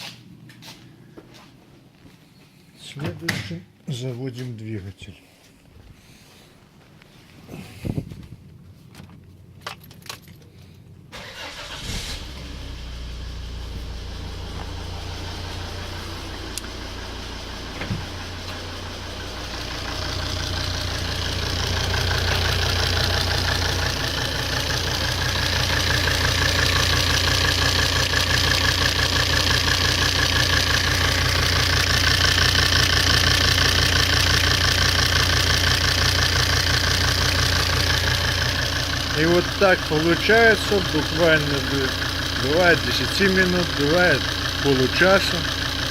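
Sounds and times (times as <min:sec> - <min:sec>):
diesel engine starting and idling: 0:09.2 - 0:45.9.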